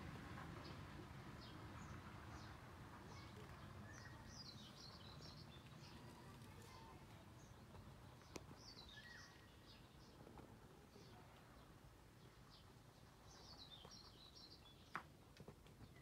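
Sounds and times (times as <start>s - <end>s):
birds chirping: 3.1s - 10.2s, 10.9s - 15.0s.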